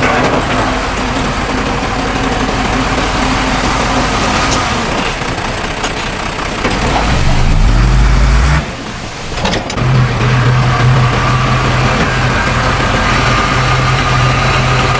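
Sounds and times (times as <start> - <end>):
heavy diesel engines running: 0.0 - 14.9.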